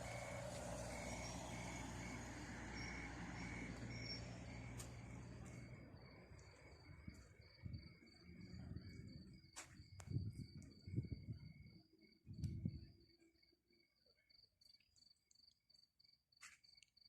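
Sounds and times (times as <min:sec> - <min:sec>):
vehicle engine rumble: 0:00.0 - 0:13.0
cricket chirping: 0:00.0 - 0:17.0.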